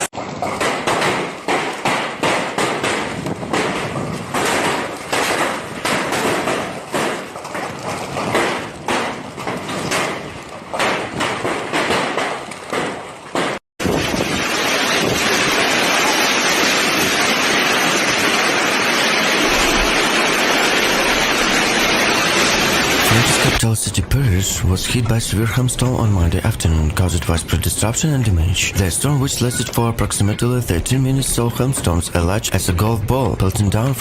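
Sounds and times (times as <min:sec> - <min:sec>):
hailstones pelting down: 0:13.8 - 0:23.6
rushing heavy hail or rain: 0:13.8 - 0:23.6.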